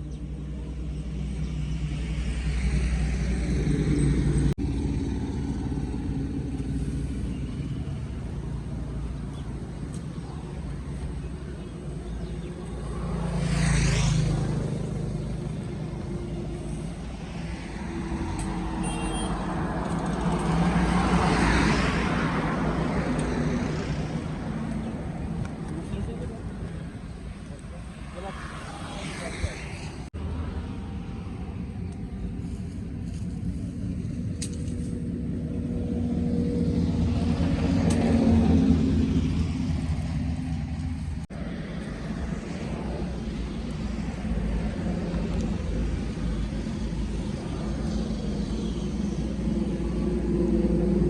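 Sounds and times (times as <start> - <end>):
motor vehicles passing: 0.0 - 51.0
steady low rumble: 22.3 - 51.0.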